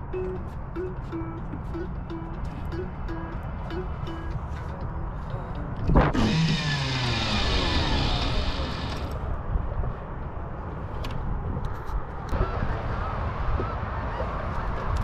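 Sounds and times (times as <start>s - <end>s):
fishing line running off reel: 6.1s - 9.1s.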